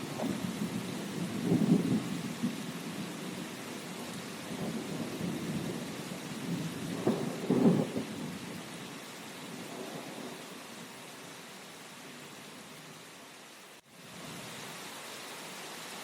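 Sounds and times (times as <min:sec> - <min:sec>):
rolling thunder: 0:00.0 - 0:08.6, 0:09.5 - 0:10.4
steady rain: 0:00.0 - 0:16.0.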